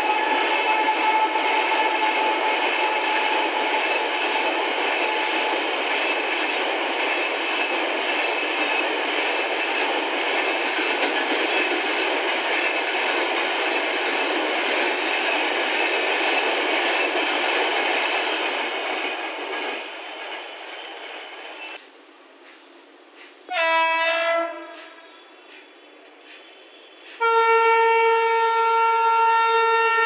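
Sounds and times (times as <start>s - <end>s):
train wheels rushing on rail: 0.0s - 30.0s.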